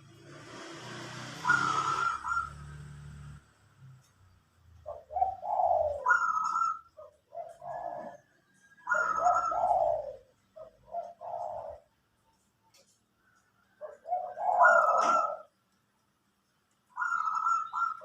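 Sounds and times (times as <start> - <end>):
dove cooing: 1.2 - 3.4, 4.8 - 12.0, 13.7 - 15.5, 17.0 - 18.0.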